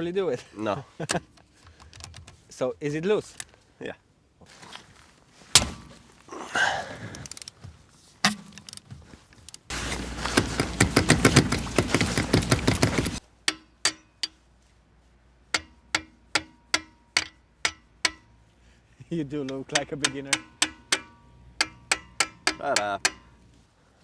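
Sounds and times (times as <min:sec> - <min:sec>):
ratchet wrench clicking: 0:07.2 - 0:07.5, 0:09.9 - 0:14.3, 0:15.6 - 0:18.3, 0:19.5 - 0:23.4
metallic ring: 0:09.7 - 0:14.5, 0:15.6 - 0:18.5, 0:19.5 - 0:23.6.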